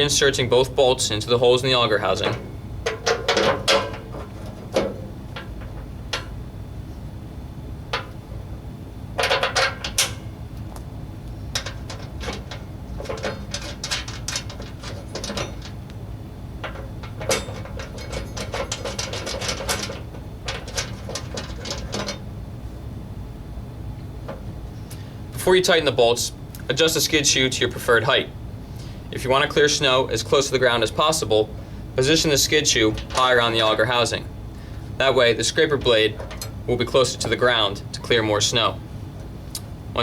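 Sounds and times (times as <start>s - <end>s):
steady low hum: 0.0s - 40.0s
metal clicks and clinks: 35.8s - 36.6s.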